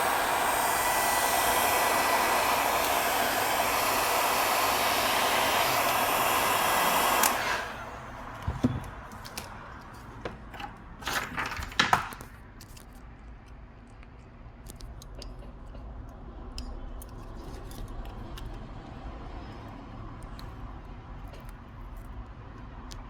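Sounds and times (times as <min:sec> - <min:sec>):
heat gun blowing: 0:00.0 - 0:08.4
clicks and taps of tools: 0:11.8 - 0:18.6.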